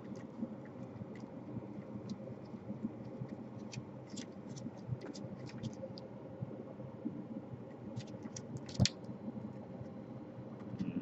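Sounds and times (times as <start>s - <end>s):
hands scratching plastic: 1.1s - 5.9s.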